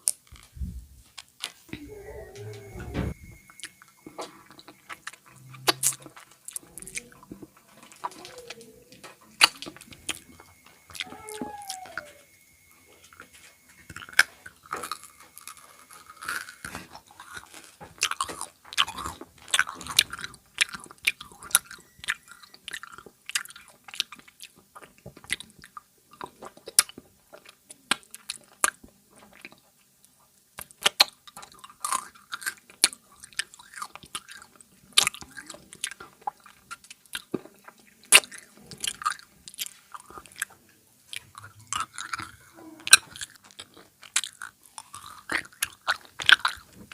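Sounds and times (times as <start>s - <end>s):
chewing crunchy snack: 3.5s - 46.9s.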